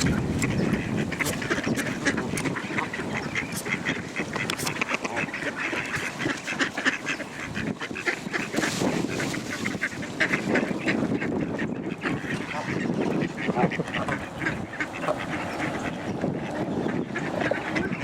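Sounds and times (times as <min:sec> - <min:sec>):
ducks quacking: 0:00.0 - 0:18.0
geese calling: 0:00.0 - 0:18.0.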